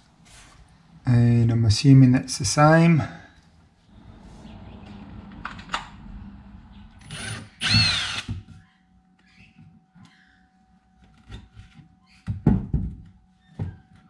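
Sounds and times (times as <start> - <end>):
electric power drill running: 7.0 - 8.4.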